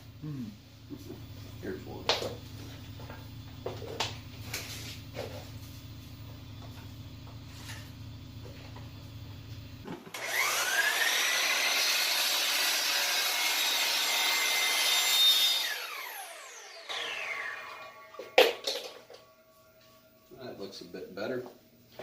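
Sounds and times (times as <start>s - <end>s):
electric miter saw cutting wood: 9.9s - 19.5s.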